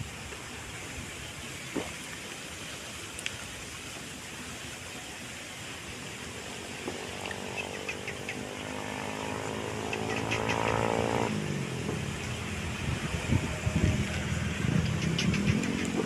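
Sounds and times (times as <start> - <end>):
small vehicle engine passing: 6.9 - 16.0
bird chirps: 7.6 - 8.5.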